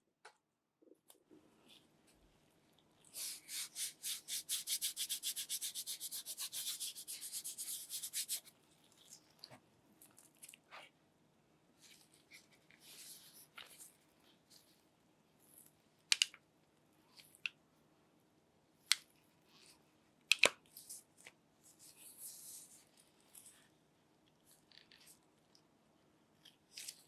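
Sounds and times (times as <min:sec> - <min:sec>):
rapid scratchy hand rubbing: 0:03.2 - 0:08.5.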